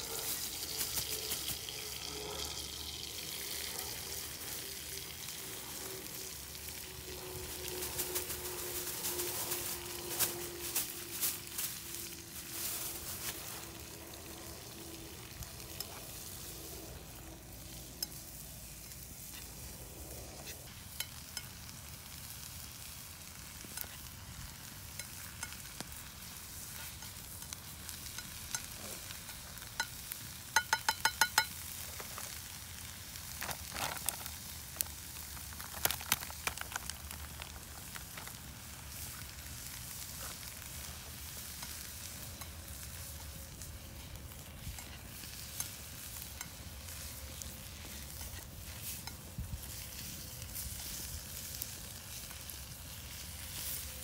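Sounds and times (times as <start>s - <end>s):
food sizzling in a pan: 0.0s - 54.0s.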